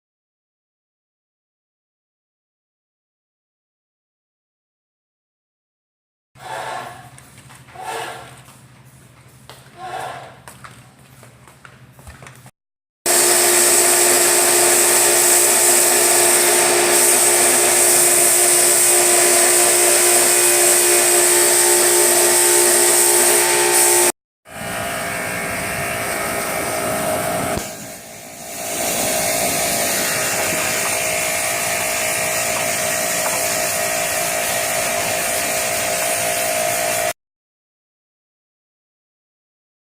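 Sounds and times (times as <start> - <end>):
motorised tool whining: 13.1 - 37.1.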